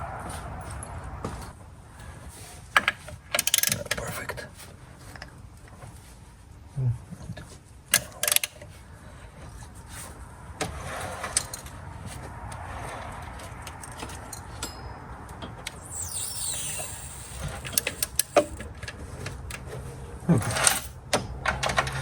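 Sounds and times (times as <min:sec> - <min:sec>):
metal tool clinks and knocks: 0:13.8 - 0:18.7
tool scraping metal: 0:15.7 - 0:18.7.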